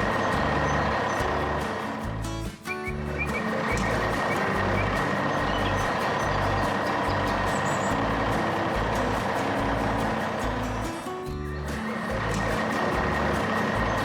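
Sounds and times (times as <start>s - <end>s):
background music bass line: 0.0s - 14.0s
heavy truck engine running: 0.0s - 14.0s.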